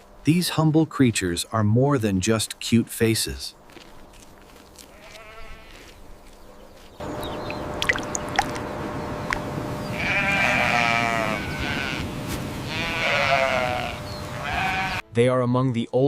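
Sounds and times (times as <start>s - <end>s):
sheep bleating: 4.8s - 5.9s, 9.9s - 15.0s.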